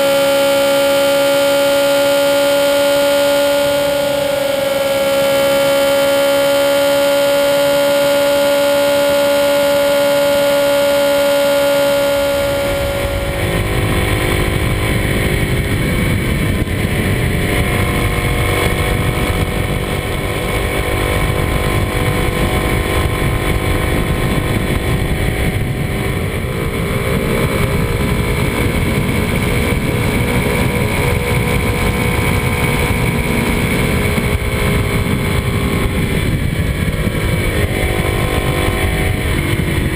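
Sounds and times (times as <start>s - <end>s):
steady hum: 0.0s - 27.2s
motorbike engine revving: 0.0s - 39.9s
wind rush: 3.6s - 39.9s.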